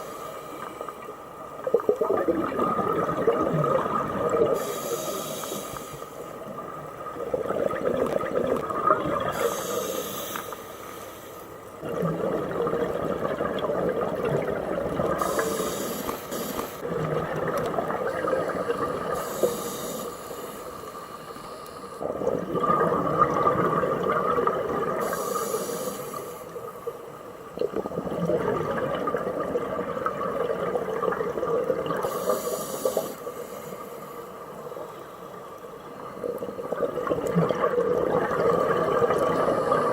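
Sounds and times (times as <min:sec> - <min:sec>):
hissing regulator inhale: 0:00.0 - 0:01.1, 0:04.4 - 0:06.4, 0:09.2 - 0:11.6, 0:15.1 - 0:16.9, 0:18.2 - 0:22.0, 0:25.0 - 0:26.8, 0:32.0 - 0:34.6
gurgling exhaled bubbles: 0:01.6 - 0:04.8, 0:06.4 - 0:09.8, 0:11.8 - 0:16.2, 0:16.8 - 0:19.4, 0:22.0 - 0:25.4, 0:27.5 - 0:33.0, 0:36.0 - 0:39.9.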